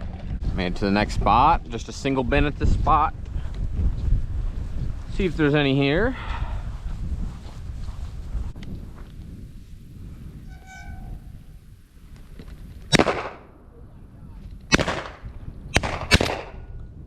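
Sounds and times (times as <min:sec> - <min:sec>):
shotgun shots echoing: 0:12.9 - 0:13.5, 0:14.7 - 0:16.7.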